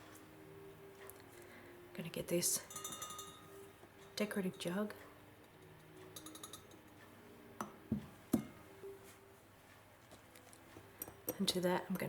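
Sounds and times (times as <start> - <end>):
jug knocking on bench: 7.6 - 8.6.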